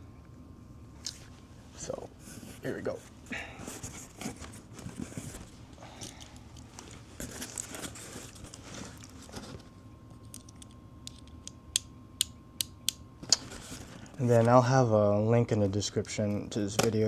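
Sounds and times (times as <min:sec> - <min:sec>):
packaging crinkling and tearing: 0:05.9 - 0:11.4.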